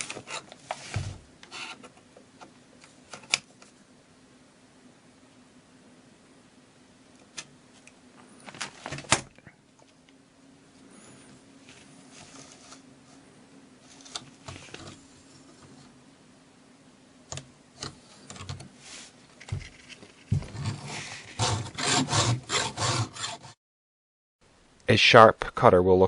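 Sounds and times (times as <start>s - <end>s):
quick filing strokes: 20.5s - 23.6s
file scraping chainsaw chain: 20.6s - 23.5s.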